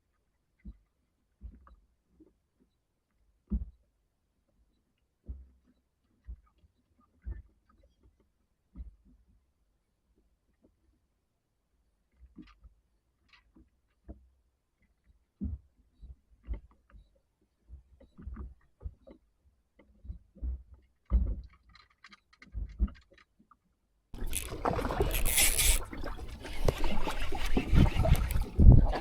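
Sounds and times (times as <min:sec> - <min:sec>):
dull knocks and thumps on boat: 0:24.2 - 0:29.0
rush of wind and water: 0:24.2 - 0:29.0.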